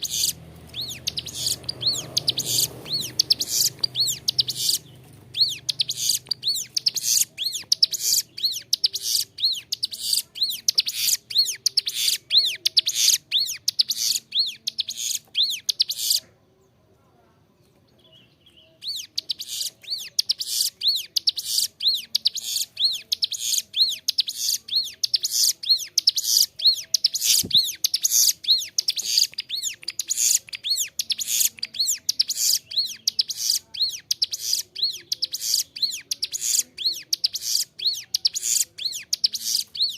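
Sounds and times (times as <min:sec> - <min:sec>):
bird singing high chirping notes: 0:00.0 - 0:16.2, 0:18.0 - 0:39.9.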